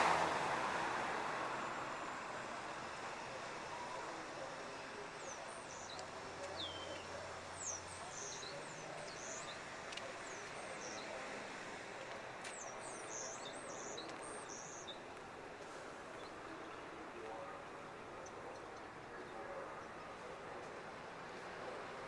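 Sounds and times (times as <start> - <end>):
small birds chirping: 4.0 - 11.3, 12.5 - 15.2.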